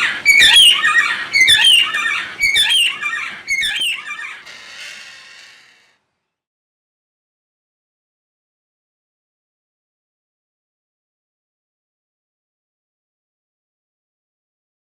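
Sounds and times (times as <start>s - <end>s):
bird squawking: 0.0s - 6.0s.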